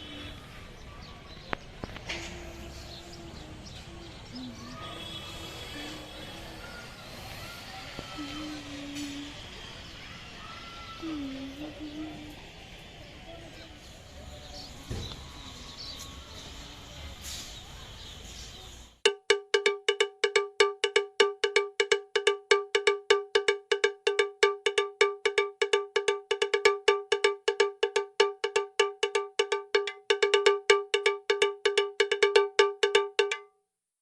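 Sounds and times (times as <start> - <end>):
small metal bell struck rapidly: 19.1 - 33.5.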